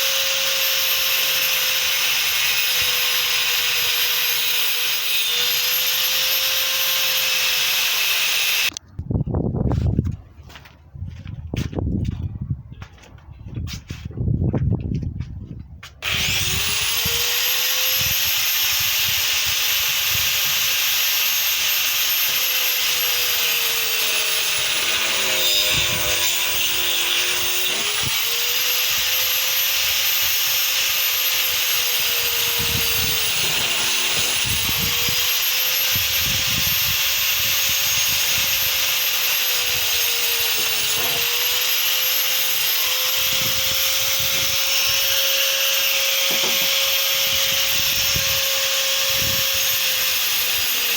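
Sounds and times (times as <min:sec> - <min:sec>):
angle grinder motor whine: 0:00.0 - 0:08.8, 0:16.0 - 0:50.9
disc grinding wood: 0:16.0 - 0:50.9.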